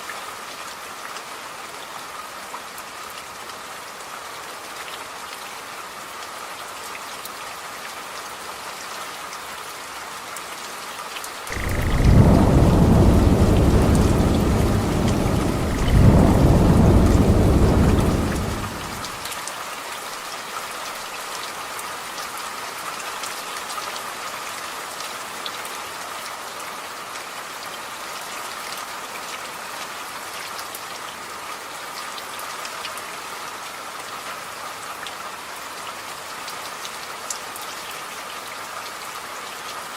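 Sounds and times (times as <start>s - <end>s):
steady rain: 0.0s - 39.9s
rolling thunder: 11.5s - 19.2s.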